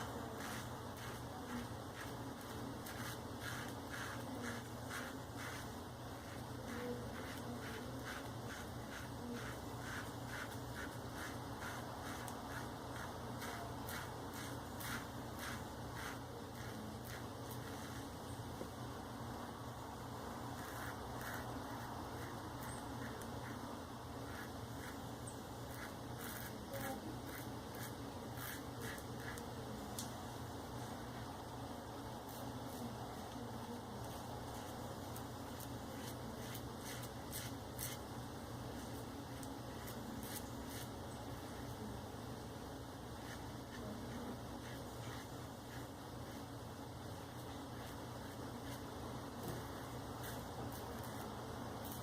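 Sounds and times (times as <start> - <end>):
razor scraping beard stubble: 0.0 - 18.1, 20.5 - 29.6, 34.0 - 38.1, 38.7 - 41.8, 43.1 - 49.0
low steady hum: 0.0 - 52.0.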